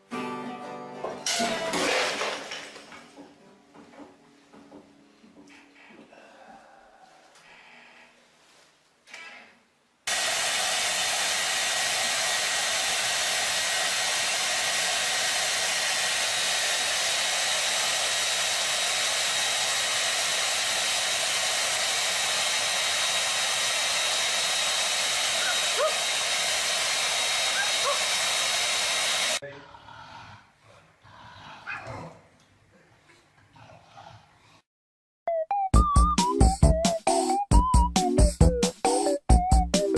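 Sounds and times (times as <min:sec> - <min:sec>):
rushing hiss with high whine: 0:10.1 - 0:29.4.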